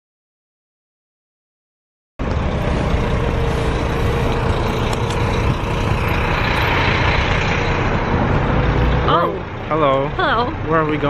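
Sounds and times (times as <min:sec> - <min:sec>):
bus engine and road noise: 0:02.2 - 0:11.0.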